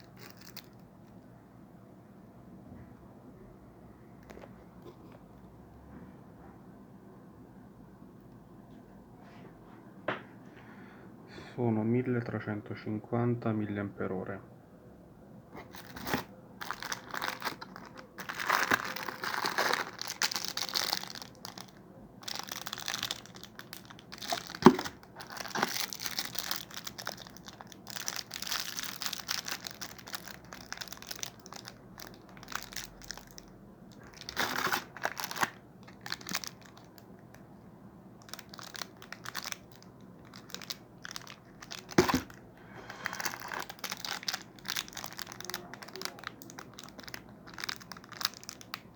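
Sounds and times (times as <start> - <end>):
packaging crinkling: 0.0 - 0.8, 15.6 - 37.4, 38.2 - 48.9.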